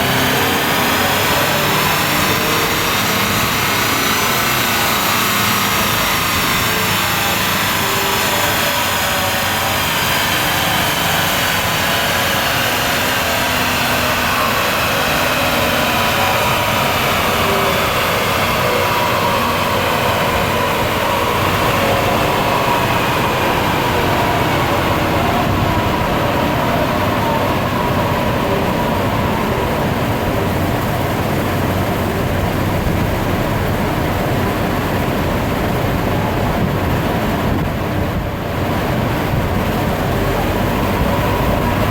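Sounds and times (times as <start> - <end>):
diesel car engine running: 0.0 - 41.9.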